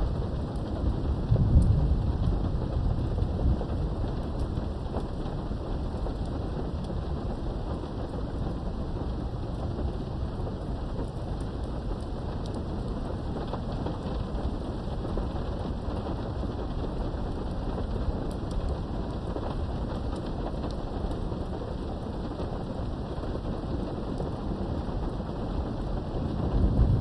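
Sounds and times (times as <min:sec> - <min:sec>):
rain behind a window: 0:00.0 - 0:27.0
distant thunder rumble: 0:00.1 - 0:04.8, 0:25.7 - 0:27.0.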